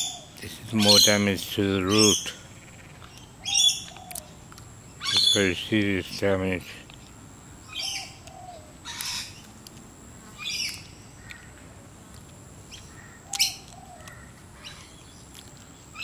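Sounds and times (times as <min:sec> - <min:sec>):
bird chirps: 0:00.0 - 0:05.6, 0:07.6 - 0:09.5, 0:10.4 - 0:11.6, 0:12.7 - 0:16.0.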